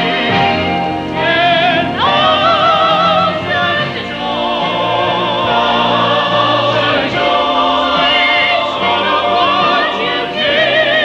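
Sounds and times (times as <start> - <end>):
choir singing held notes: 0.0 - 11.0.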